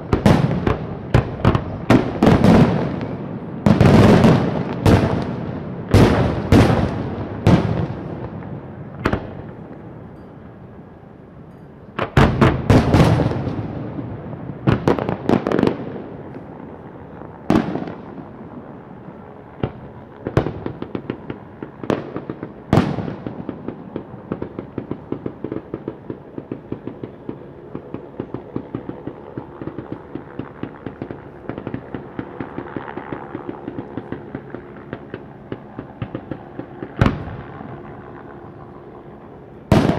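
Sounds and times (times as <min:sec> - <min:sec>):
fireworks banging: 0:00.0 - 0:09.9, 0:12.0 - 0:16.0, 0:19.6 - 0:37.8, 0:39.7 - 0:39.9
fireworks crackling: 0:00.0 - 0:09.9, 0:39.5 - 0:39.9.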